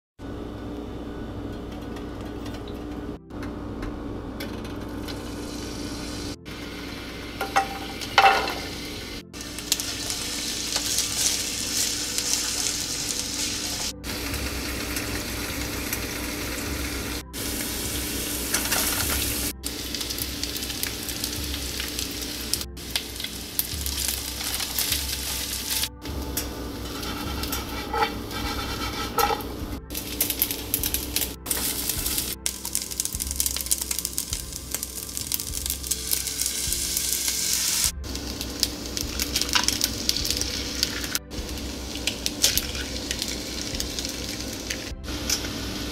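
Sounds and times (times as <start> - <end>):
garlic and onion sizzling in oil: 5.2 - 45.9
rice being stirred in pan: 9.4 - 15.0, 21.6 - 36.2.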